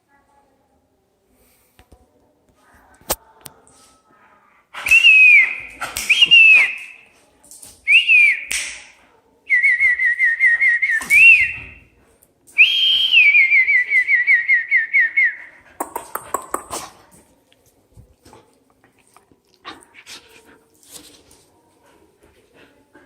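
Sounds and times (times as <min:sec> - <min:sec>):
person whistling: 0:09.6 - 0:11.8, 0:12.6 - 0:15.4.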